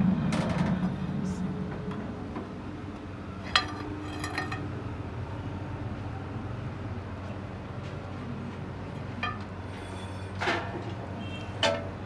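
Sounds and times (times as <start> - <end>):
metal clinking: 3.4 - 4.6.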